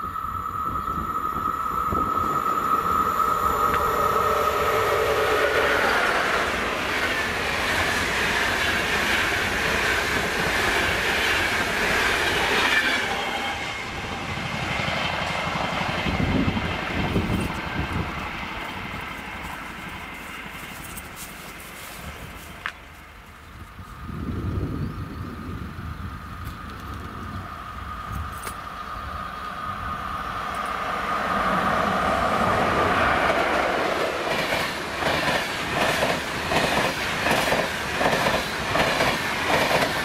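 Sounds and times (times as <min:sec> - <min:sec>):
high whine: 0:00.0 - 0:08.1
train rushing past: 0:00.0 - 0:23.2, 0:24.0 - 0:40.0.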